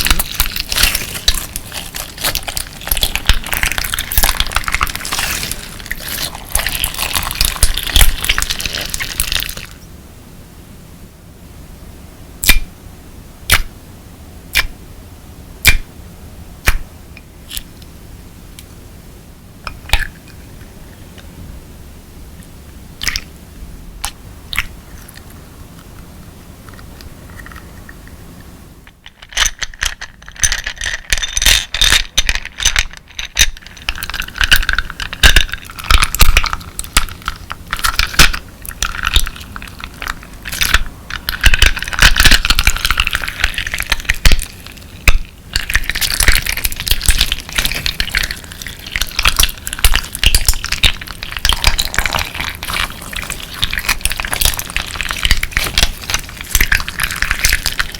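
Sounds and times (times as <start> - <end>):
slime crunching and crackling: 0.0 - 9.8, 30.2 - 57.9.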